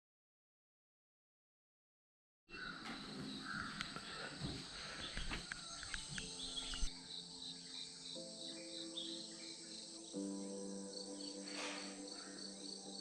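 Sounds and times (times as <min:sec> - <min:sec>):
bird calls: 0:02.5 - 0:10.4, 0:11.2 - 0:12.7
insects chirring: 0:02.5 - 0:13.0
soft background music: 0:02.6 - 0:13.0.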